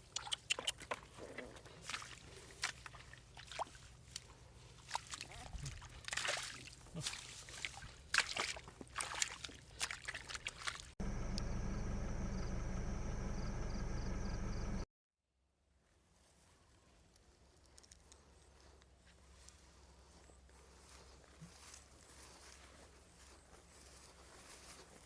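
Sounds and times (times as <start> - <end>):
loud mechanical drone: 11.0 - 14.8.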